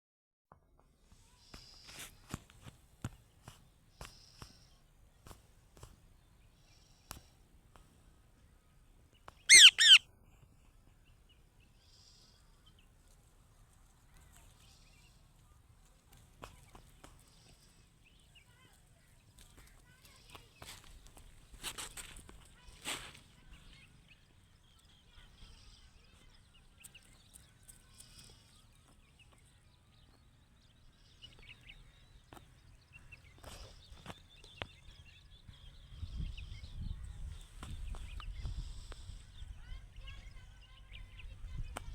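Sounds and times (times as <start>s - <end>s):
parrot squawks: 9.5s - 10.0s.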